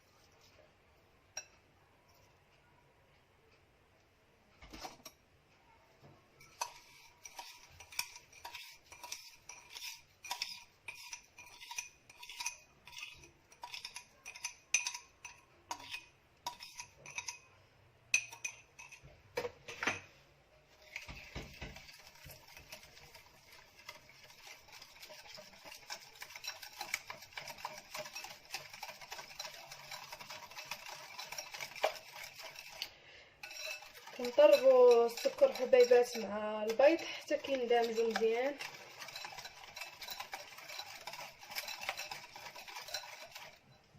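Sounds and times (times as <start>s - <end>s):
whisk clinking against bowl: 6.4s - 17.5s, 18.1s - 19.1s, 20.8s - 43.8s.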